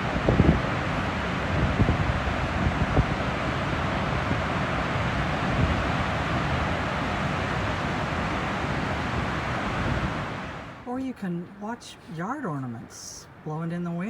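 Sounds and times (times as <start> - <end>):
wind blowing on microphone: 0.0 - 10.7.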